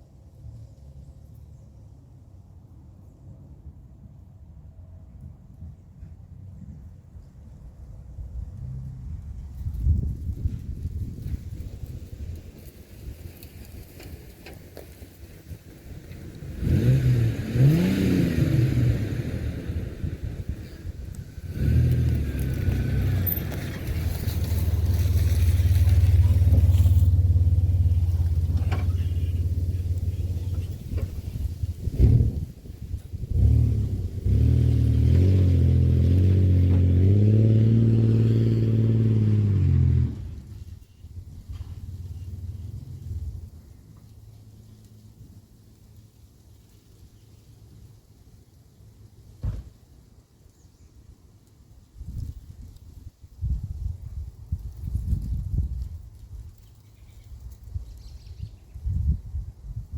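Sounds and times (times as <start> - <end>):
vehicle engine revving: 16.3 - 43.6.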